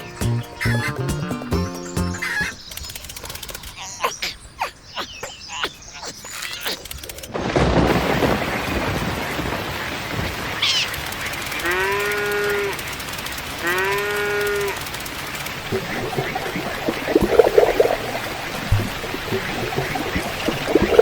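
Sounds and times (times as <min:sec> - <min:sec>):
steady rushing noise: 0:14.8 - 0:21.0.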